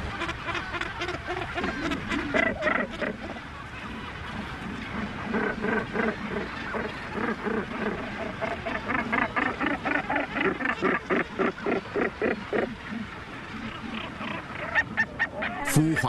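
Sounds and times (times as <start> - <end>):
gannets calling harshly: 0.1 - 3.4.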